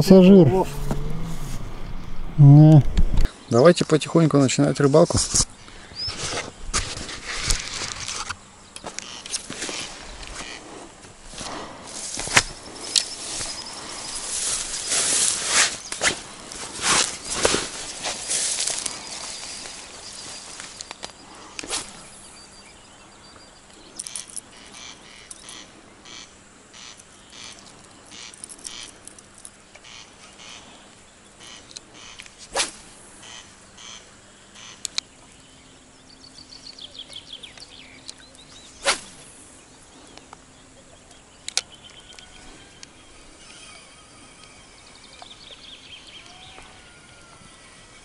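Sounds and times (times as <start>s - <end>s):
chirping birdsong: 8.5s - 10.8s, 11.5s - 16.6s, 18.2s - 32.4s, 33.2s - 48.0s
bird calls: 8.6s - 10.9s, 11.5s - 48.0s.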